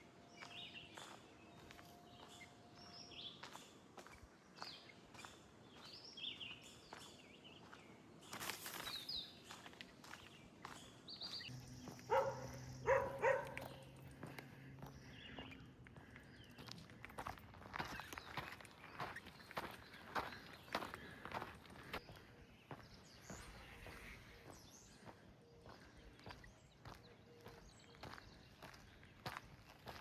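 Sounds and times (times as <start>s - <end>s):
footsteps on a trail: 0.3s - 30.0s
small birds chirping: 0.3s - 30.0s
low steady hum: 11.5s - 17.6s.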